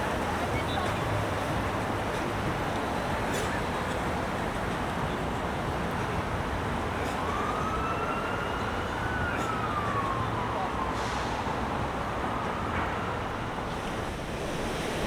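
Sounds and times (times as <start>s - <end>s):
faint siren wail: 6.8s - 13.7s.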